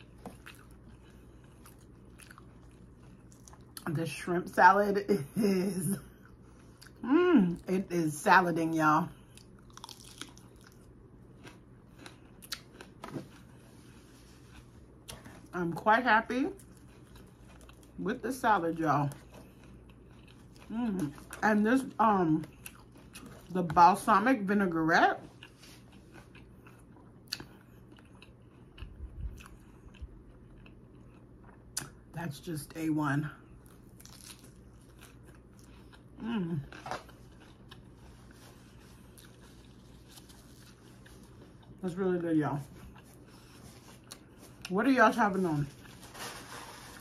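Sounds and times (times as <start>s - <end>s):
person chewing crunchy salad: 0.0s - 3.8s, 6.2s - 7.0s, 9.1s - 15.8s, 16.5s - 18.0s, 19.1s - 21.4s, 22.3s - 23.7s, 25.2s - 32.1s, 33.4s - 41.9s, 42.6s - 44.8s, 45.7s - 47.0s.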